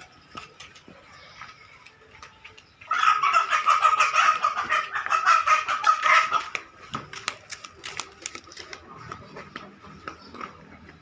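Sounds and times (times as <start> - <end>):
chicken clucking loudly: 2.7 - 11.0.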